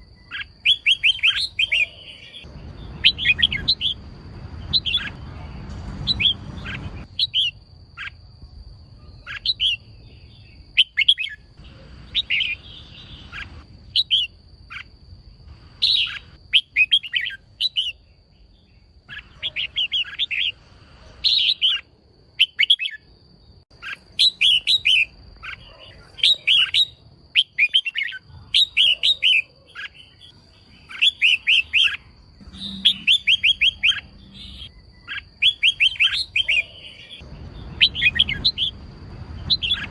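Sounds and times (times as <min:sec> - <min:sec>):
bulbul chirping: 0:00.2 - 0:04.0, 0:30.9 - 0:38.8, 0:39.4 - 0:39.9
faint steady high tone: 0:32.0 - 0:35.1.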